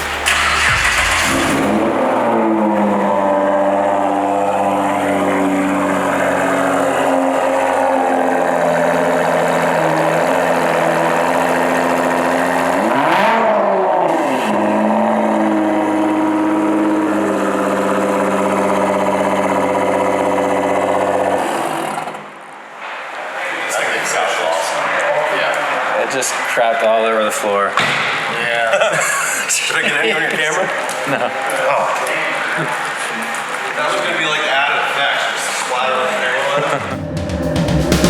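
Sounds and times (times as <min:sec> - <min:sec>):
diesel pickup engine revving: 0:00.0 - 0:22.2.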